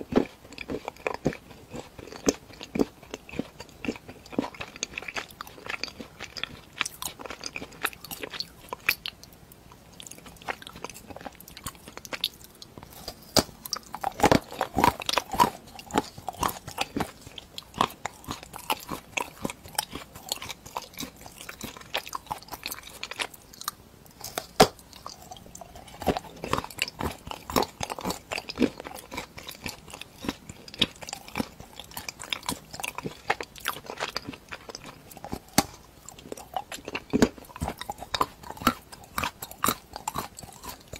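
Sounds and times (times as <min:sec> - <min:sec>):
hard treat crunching and chewing: 0:00.0 - 0:40.9.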